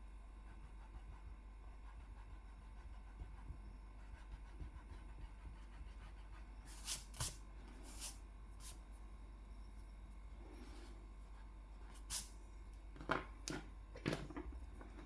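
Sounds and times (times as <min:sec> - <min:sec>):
drawing tool scratching on paper: 0:00.4 - 0:08.8.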